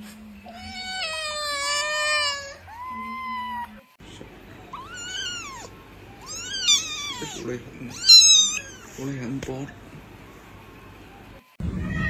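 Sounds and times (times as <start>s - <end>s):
kittens meowing: 4.8s - 9.0s.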